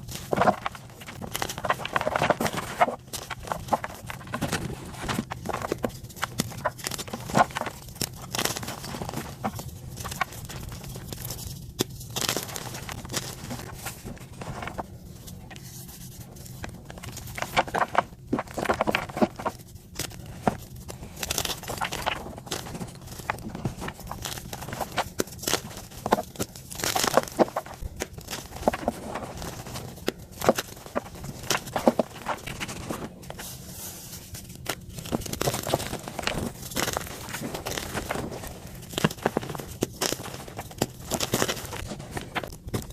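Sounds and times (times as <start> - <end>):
chalk crunching and crackling: 0.0 - 42.9
steady low hum: 0.0 - 42.9.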